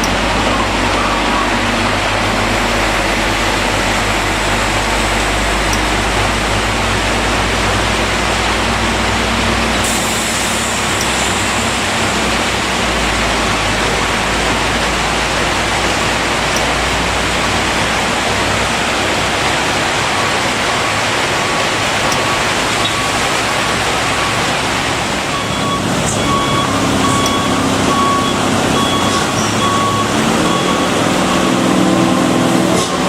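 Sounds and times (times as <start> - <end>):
vehicle warning beeps: 0.0 - 3.8, 22.0 - 31.7
heavy truck traffic rushing: 0.0 - 33.0.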